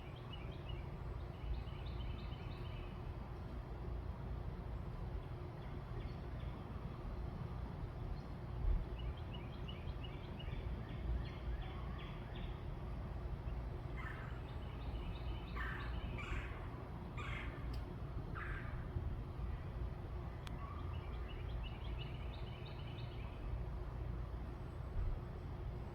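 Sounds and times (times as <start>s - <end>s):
low background rumble: 0.0s - 25.9s
birds calling: 13.4s - 19.5s.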